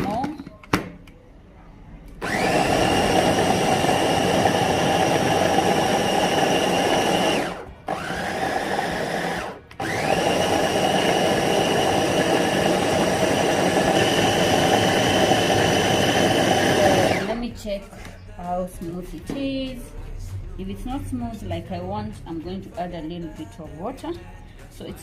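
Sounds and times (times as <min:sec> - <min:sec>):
electric blender motor whining: 0:02.2 - 0:17.3.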